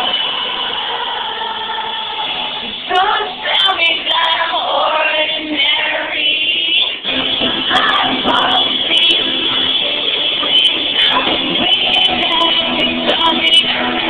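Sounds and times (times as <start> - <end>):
person singing: 2.9 - 14.0
live band with electric guitars: 6.8 - 14.0.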